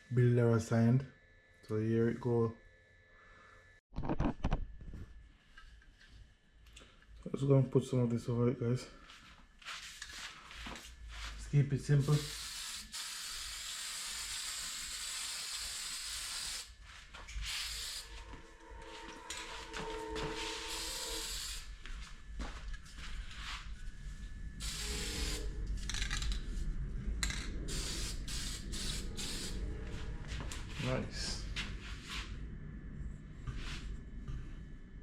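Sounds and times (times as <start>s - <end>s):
aerosol spray can hissing: 12.0s - 16.8s, 17.4s - 18.1s, 20.7s - 21.7s, 24.6s - 25.5s, 27.7s - 29.6s.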